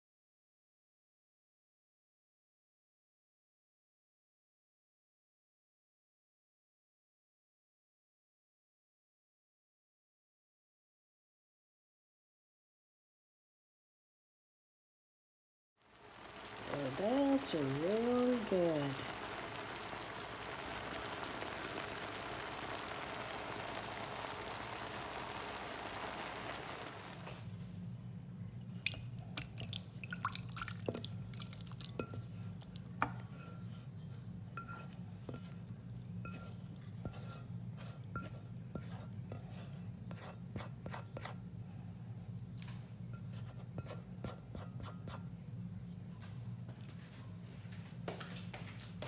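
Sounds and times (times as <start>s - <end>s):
steady hiss: 15.9s - 27.5s
low steady hum: 15.9s - 37.9s
cutlery scraping on a plate: 33.1s - 33.8s, 34.6s - 35.6s, 36.3s - 41.4s.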